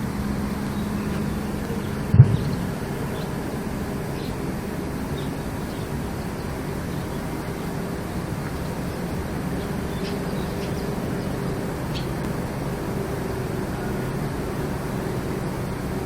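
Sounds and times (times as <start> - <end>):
low droning hum: 0.0 - 16.0.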